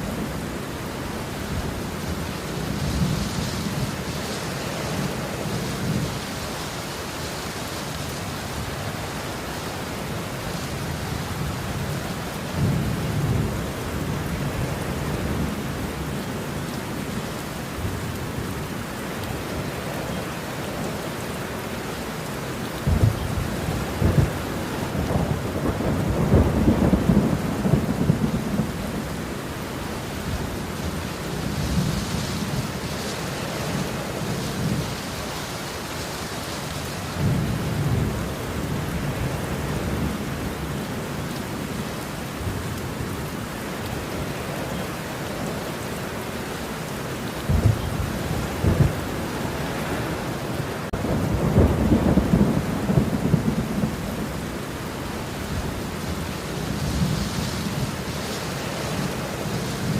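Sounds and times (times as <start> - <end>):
steady rain: 0.0 - 59.9
rolling thunder: 22.8 - 29.2, 47.4 - 50.2, 50.9 - 54.6.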